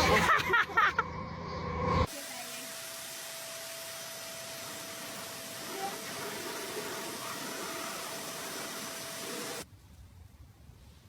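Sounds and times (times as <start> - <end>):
steady hiss: 2.1 - 9.7.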